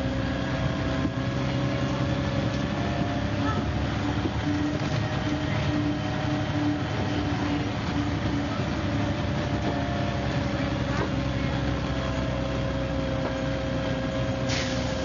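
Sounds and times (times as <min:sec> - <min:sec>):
bus engine running: 0:00.0 - 0:15.0
short hiss: 0:14.5 - 0:15.0.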